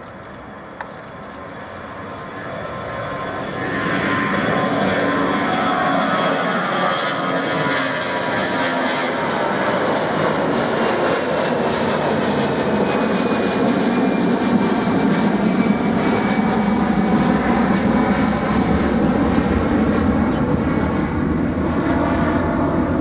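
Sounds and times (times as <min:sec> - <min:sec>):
jet airliner passing overhead: 0:00.0 - 0:23.0.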